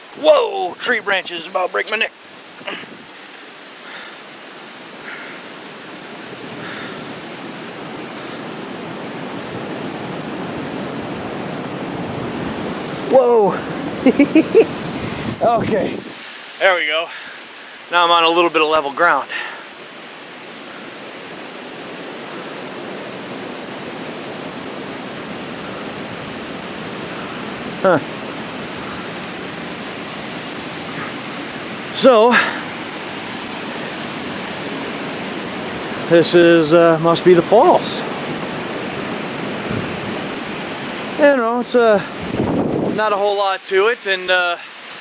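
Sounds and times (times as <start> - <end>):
waterfall rushing: 0.0 - 45.0
water pouring over waterfall: 27.5 - 45.0.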